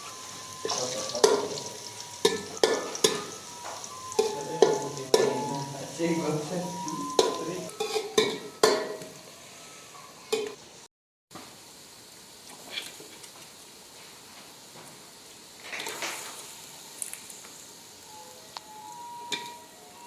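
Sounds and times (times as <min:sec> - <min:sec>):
spoon stirring in pot: 0:00.0 - 0:09.1
birds frying in oil: 0:00.0 - 0:20.0.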